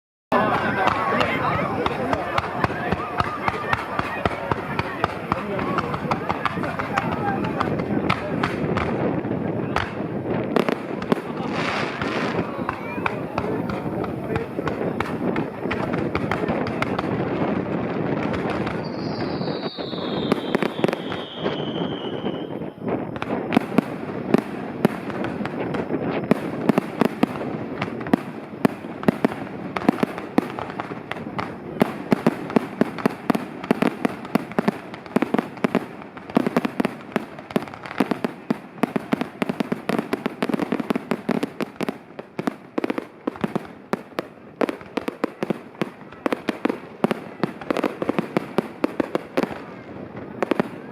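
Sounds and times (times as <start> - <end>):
fireworks bangs and crackles: 0.3 - 50.9
falling firework whistle: 18.2 - 42.0.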